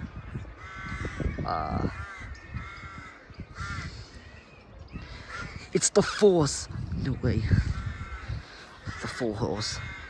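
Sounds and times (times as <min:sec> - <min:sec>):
crows cawing: 0:00.3 - 0:04.4, 0:05.0 - 0:06.3, 0:07.5 - 0:10.0.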